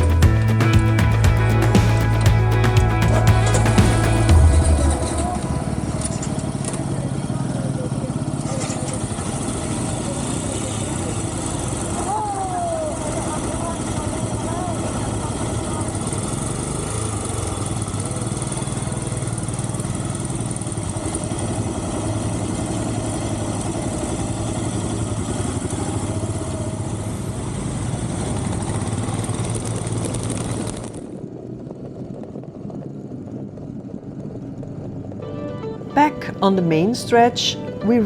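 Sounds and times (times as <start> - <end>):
motorcycle engine running: 0.0 - 31.1
wind and road noise: 15.3 - 35.7.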